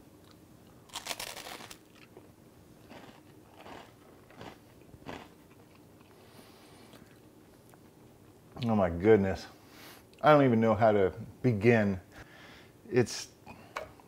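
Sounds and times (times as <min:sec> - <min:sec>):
faint crunchy chewing: 0:00.2 - 0:08.2
crunchy bites of toast: 0:00.9 - 0:02.2, 0:02.8 - 0:05.9.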